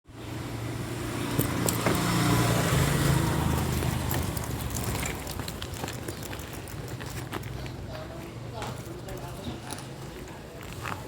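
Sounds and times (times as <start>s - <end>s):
passing vehicle engine hum: 0.1s - 5.8s
sharp clicks and rattles: 3.6s - 7.5s.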